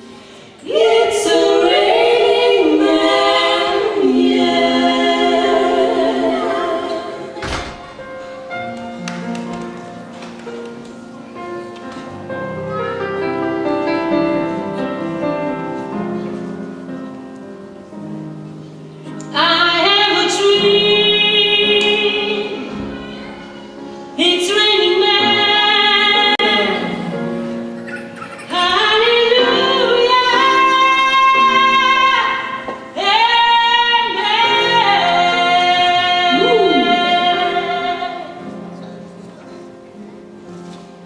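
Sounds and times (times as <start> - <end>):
female vocal group singing harmony: 0.2 - 7.4, 19.3 - 27.4, 28.4 - 38.6.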